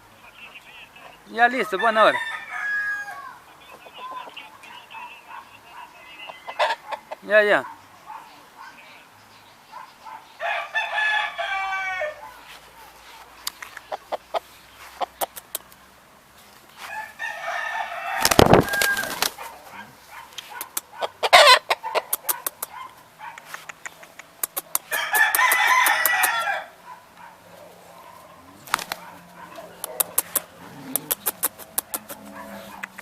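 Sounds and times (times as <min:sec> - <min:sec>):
roosters crowing: 0:01.3 - 0:04.3, 0:05.7 - 0:07.6, 0:10.3 - 0:12.5, 0:16.8 - 0:20.2, 0:20.9 - 0:22.4, 0:24.7 - 0:33.0
short sharp clicks: 0:29.8 - 0:32.2.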